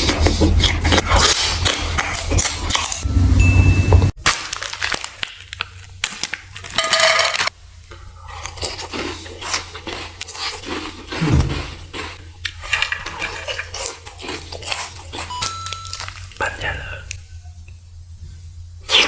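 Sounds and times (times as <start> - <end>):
food packaging crinkling and tearing: 4.2 - 17.2
tableware clinks and scrapes: 6.7 - 7.5.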